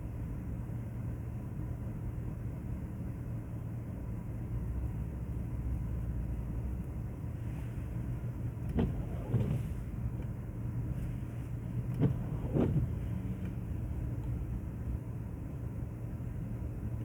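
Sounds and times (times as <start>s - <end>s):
engine and tyre rumble: 0.0s - 17.0s
windscreen wipers sweeping: 7.3s - 15.7s.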